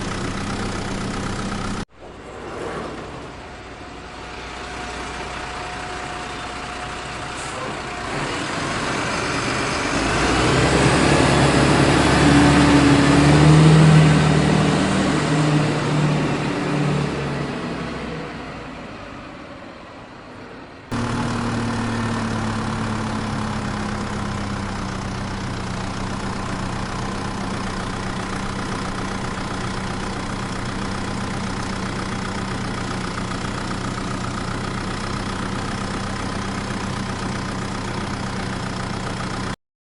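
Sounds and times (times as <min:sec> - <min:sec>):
engine idling: 0:00.0 - 0:01.9, 0:03.6 - 0:10.0, 0:20.9 - 0:39.6
truck engine: 0:00.0 - 0:39.6.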